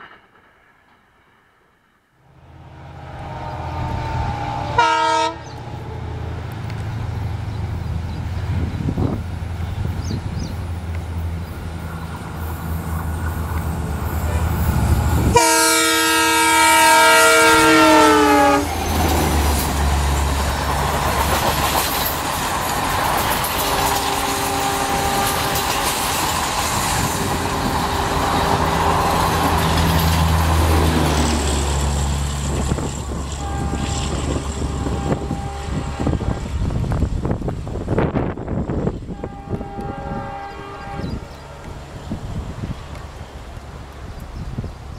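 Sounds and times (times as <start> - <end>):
train rumble and wheel clatter: 2.4 - 44.9
locomotive horn blowing: 2.8 - 6.1, 15.2 - 18.8, 24.0 - 26.0, 33.1 - 36.9, 39.0 - 41.4.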